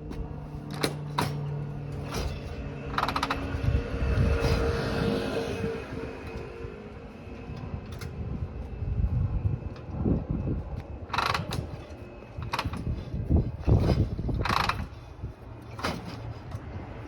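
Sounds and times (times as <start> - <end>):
motorcycle kick-start clunks and ratcheting: 0.7 - 3.6, 11.1 - 13.0, 13.6 - 16.6.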